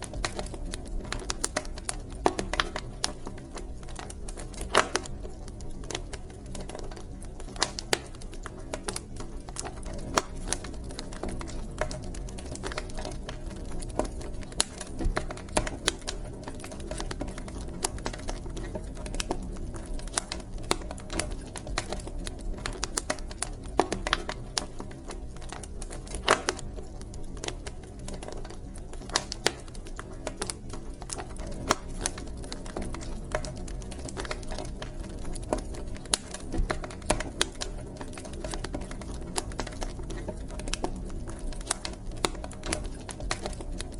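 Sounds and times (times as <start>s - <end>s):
low rumble of flames: 0.0s - 43.9s
wood fire crackling and popping: 0.0s - 43.9s.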